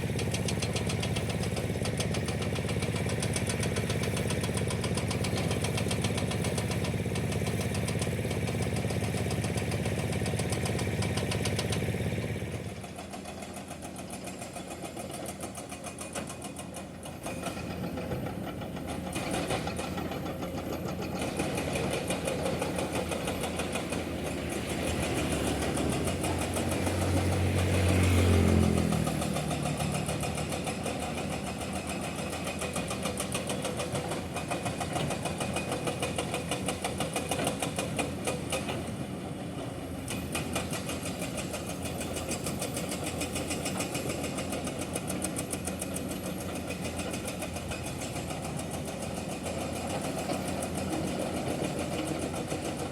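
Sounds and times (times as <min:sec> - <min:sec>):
diesel engine running: 0:00.0 - 0:52.9
hydraulic breaker hammering rock: 0:13.1 - 0:52.9.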